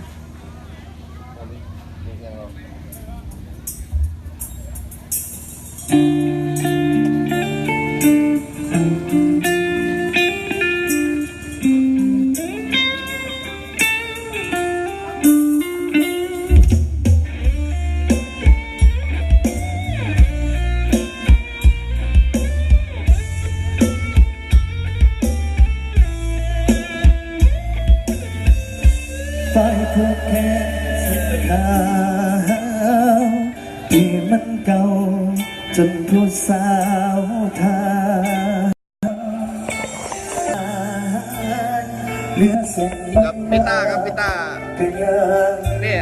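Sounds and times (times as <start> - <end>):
bass: 0.0 - 46.0
electric guitar lead: 5.7 - 46.0
heavy kick drum beat: 21.3 - 29.3.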